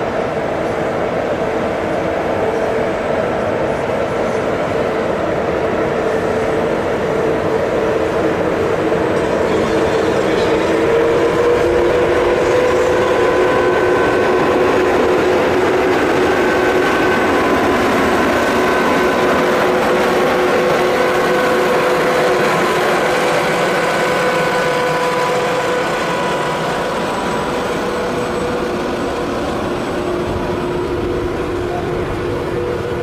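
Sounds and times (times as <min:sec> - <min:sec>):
locomotive humming tones: 0:00.0 - 0:33.0
train rolling rumble: 0:00.0 - 0:33.0.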